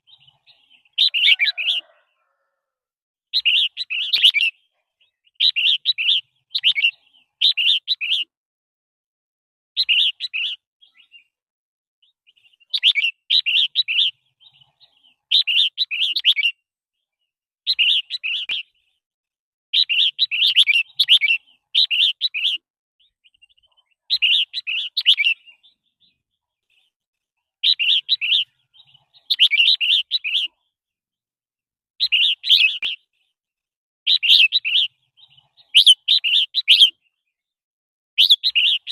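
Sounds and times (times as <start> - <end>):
bulbul singing: 0.0 - 2.1, 3.3 - 8.3, 9.8 - 11.4, 12.0 - 16.6, 17.2 - 19.0, 19.8 - 27.0, 27.6 - 30.7, 32.0 - 33.3, 34.1 - 37.2, 38.2 - 38.9.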